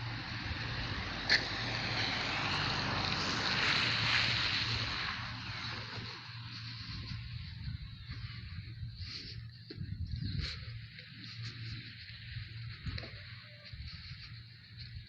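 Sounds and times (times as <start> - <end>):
tyre hiss on wet street: 0.0 - 6.7.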